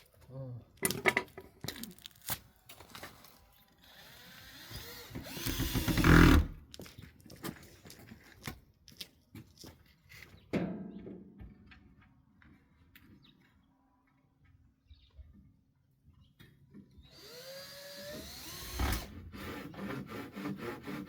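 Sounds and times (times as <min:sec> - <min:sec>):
power tool running: 0:03.9 - 0:06.6, 0:17.0 - 0:21.0.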